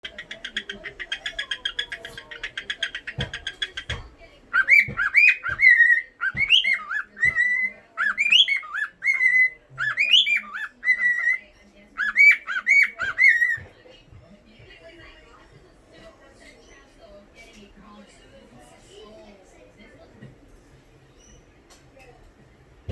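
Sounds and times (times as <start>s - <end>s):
cockatiel chirping: 0.0s - 11.4s, 12.0s - 13.7s
cockatiel whistling a tune: 4.6s - 11.4s.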